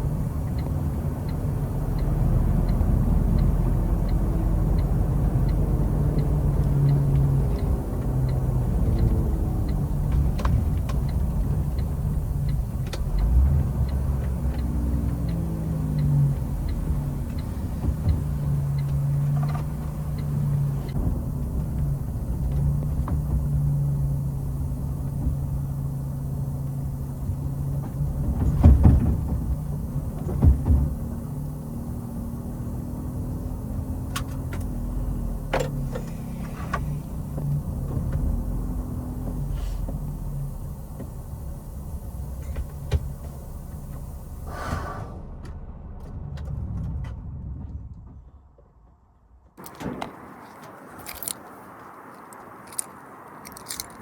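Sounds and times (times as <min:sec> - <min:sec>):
faint ticking: 0:00.0 - 0:28.2
truck engine running: 0:00.0 - 0:54.0.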